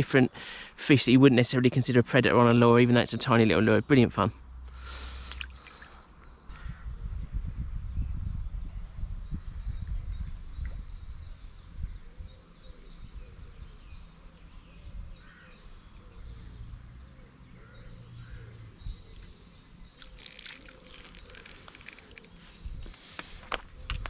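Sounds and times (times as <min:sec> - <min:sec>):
small birds chirping: 0:00.0 - 0:24.0
wind rumble on microphone: 0:06.2 - 0:19.4, 0:20.8 - 0:24.0
rustling and clicks: 0:20.0 - 0:24.0.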